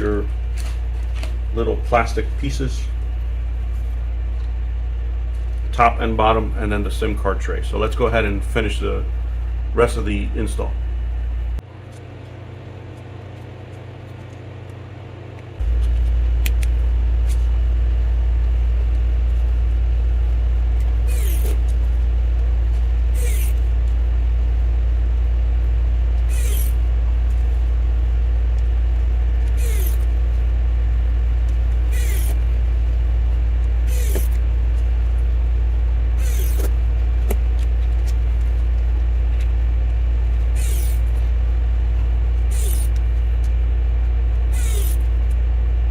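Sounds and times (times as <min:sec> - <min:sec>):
loud low hum: 0:00.0 - 0:45.9
electric screwdriver whirring: 0:21.1 - 0:21.7, 0:23.1 - 0:23.6, 0:26.2 - 0:26.8, 0:29.4 - 0:30.1, 0:31.9 - 0:32.4, 0:33.8 - 0:34.4, 0:36.2 - 0:36.8, 0:40.6 - 0:41.1, 0:42.5 - 0:43.0, 0:44.5 - 0:45.1.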